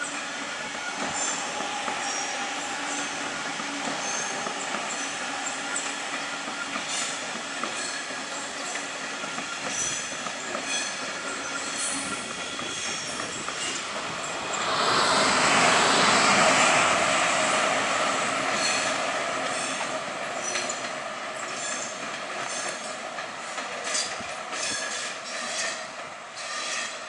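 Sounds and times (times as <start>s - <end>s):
train rushing past: 0.0s - 27.0s.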